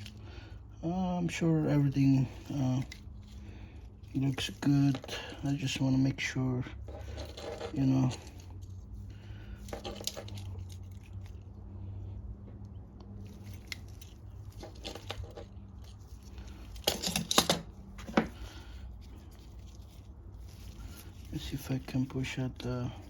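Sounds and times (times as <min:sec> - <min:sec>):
hands handling small metal parts: 0:00.0 - 0:00.5, 0:01.2 - 0:11.5, 0:13.1 - 0:23.0
steady low hum: 0:00.0 - 0:23.0
sharp clatters of parts: 0:06.9 - 0:08.8, 0:09.5 - 0:11.4, 0:13.2 - 0:18.6.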